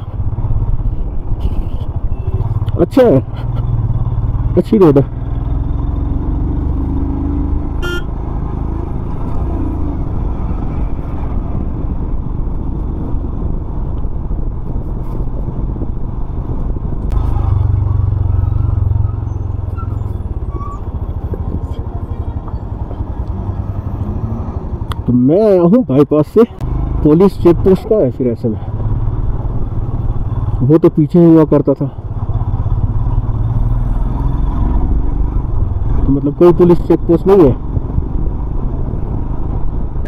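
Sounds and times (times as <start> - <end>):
wind and road noise: 0.0 - 40.0
motorcycle engine running: 26.4 - 36.8.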